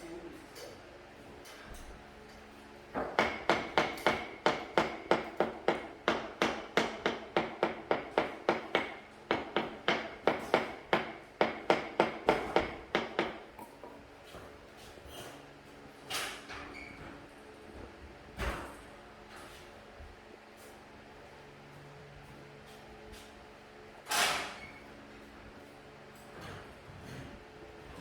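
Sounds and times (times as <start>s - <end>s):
rapid hammering: 3.0s - 13.4s.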